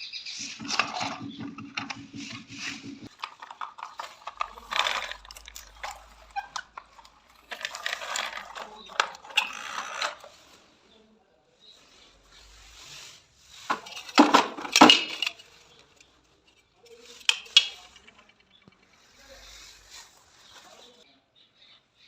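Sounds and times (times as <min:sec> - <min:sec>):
small hard objects clattering: 0:00.4 - 0:10.6, 0:13.6 - 0:21.0.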